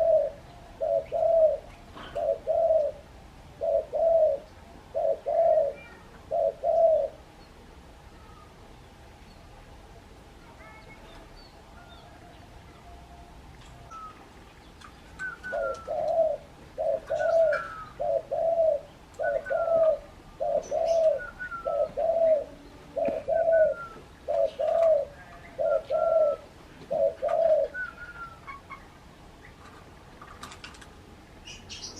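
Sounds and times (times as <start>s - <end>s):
dove cooing: 0.0s - 7.2s, 15.1s - 28.9s.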